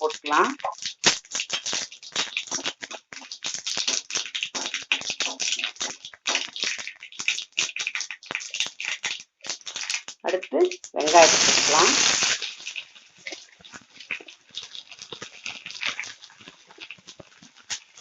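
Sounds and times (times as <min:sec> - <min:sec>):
mustard seeds popping in hot oil: 0:00.0 - 0:18.0.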